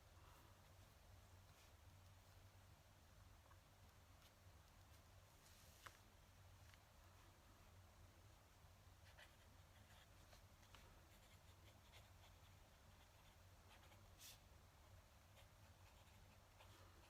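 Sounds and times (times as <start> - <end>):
pen nib scratching on paper: 9.1 - 14.4, 15.2 - 17.0.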